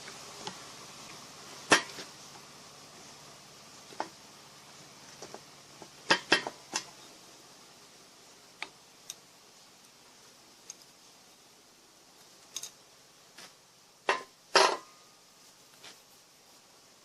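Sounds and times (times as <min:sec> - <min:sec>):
metal parts and tools clinking: 0:12.3 - 0:12.8.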